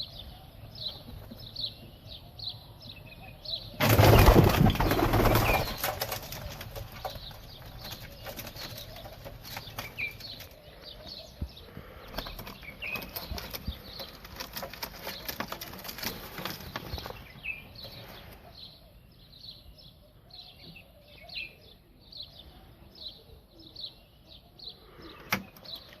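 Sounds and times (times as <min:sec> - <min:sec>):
bird chirps: 0:00.0 - 0:26.0
birds flapping wings: 0:03.8 - 0:10.6.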